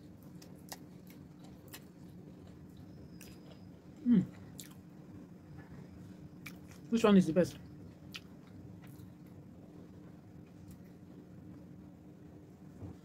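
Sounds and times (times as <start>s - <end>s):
person chewing food: 0.0s - 4.8s, 6.4s - 6.9s, 7.9s - 9.4s
person humming mm: 4.0s - 4.4s.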